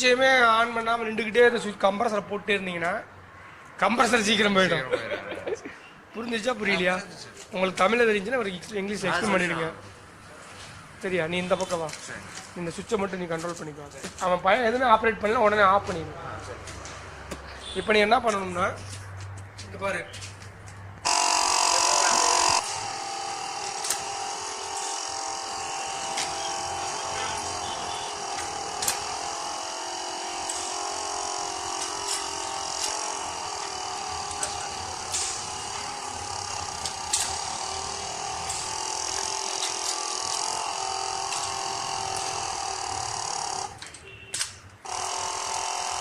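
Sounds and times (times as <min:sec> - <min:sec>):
air compressor buzzing hum: 0:21.0 - 0:46.0
sharp clicks: 0:28.4 - 0:29.2.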